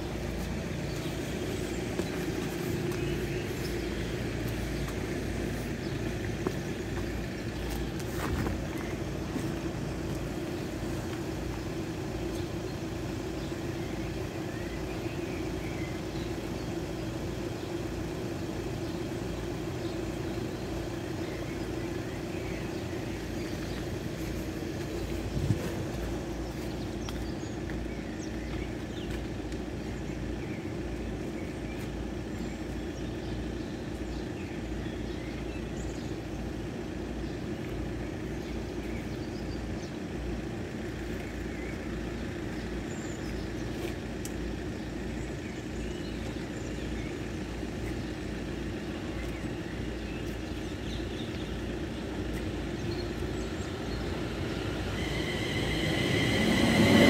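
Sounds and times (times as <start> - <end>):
low outdoor rumble: 0.0 - 57.0
approaching electric train: 51.5 - 57.0
high ringing tones from rails: 54.8 - 57.0.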